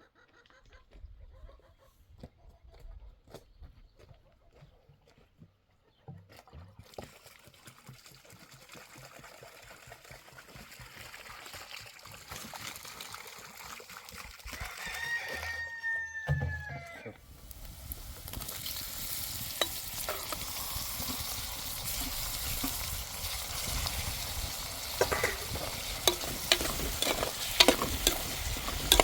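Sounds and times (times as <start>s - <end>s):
rooster crowing: 14.6s - 17.2s.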